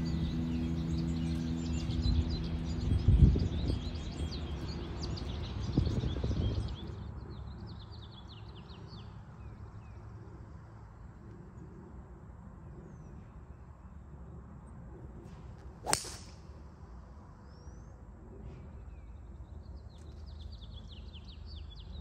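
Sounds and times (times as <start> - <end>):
low steady hum: 0.0 - 5.6
songbirds chirping and singing: 0.0 - 10.1.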